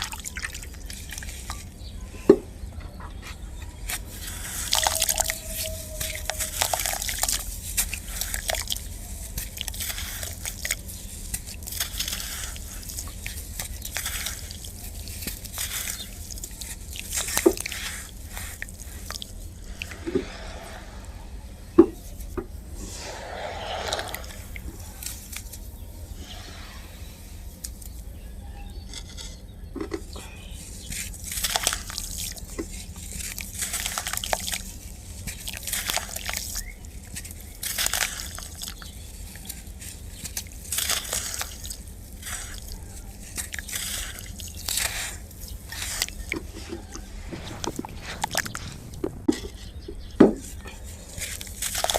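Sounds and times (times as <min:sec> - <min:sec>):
water drips and trickles: 0:00.0 - 0:01.9, 0:04.0 - 0:20.8, 0:30.7 - 0:49.6
sand crumbling into water: 0:22.9 - 0:25.5, 0:43.4 - 0:51.9.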